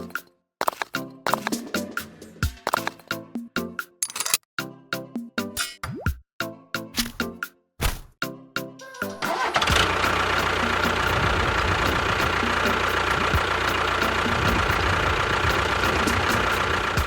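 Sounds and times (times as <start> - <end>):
tractor engine running: 9.2 - 17.0.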